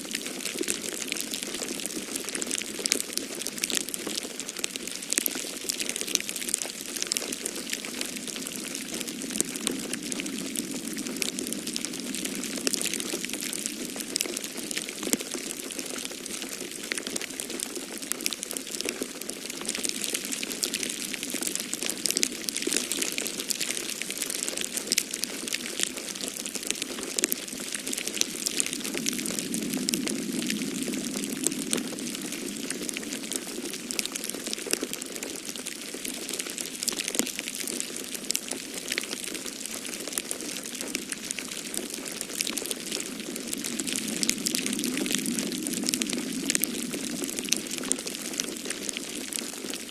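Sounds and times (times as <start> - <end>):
wood fire crackling: 0.2 - 49.9
snowstorm wind rushing: 8.0 - 14.1, 28.2 - 33.9, 42.8 - 48.2.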